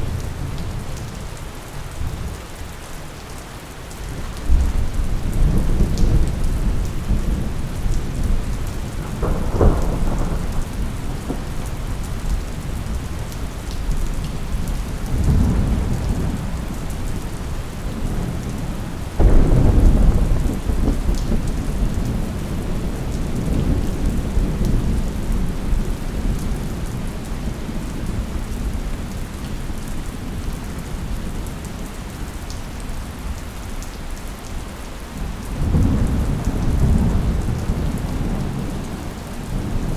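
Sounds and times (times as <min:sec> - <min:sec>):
rain falling: 0:00.0 - 0:39.9
thunder rumbling: 0:04.4 - 0:29.2, 0:35.5 - 0:39.9.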